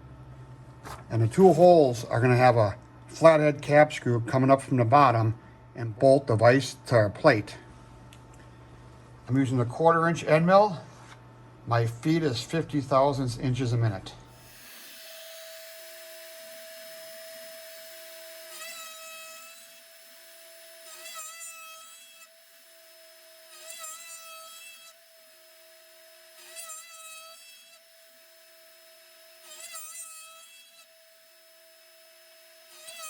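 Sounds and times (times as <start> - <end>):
mill spindle whine: 14.3 - 18.5
metal cutting noise: 14.3 - 33.0.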